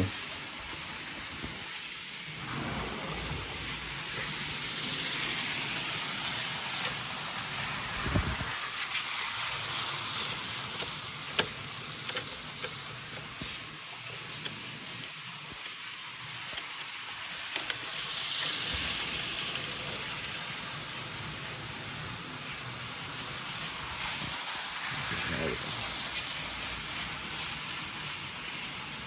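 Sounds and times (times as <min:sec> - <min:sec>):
toy train wheels and motor hiss: 0:00.0 - 0:29.0
toy train clicks: 0:04.6 - 0:20.5.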